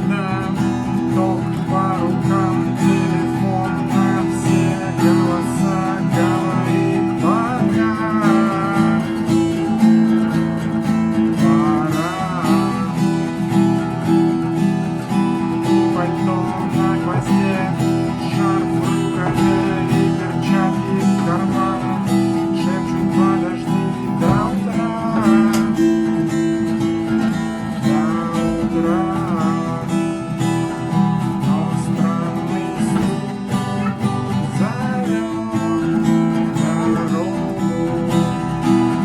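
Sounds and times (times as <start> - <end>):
acoustic guitar strumming: 0.0 - 39.0
muted percussive guitar knock: 14.9 - 29.6, 32.4 - 34.7.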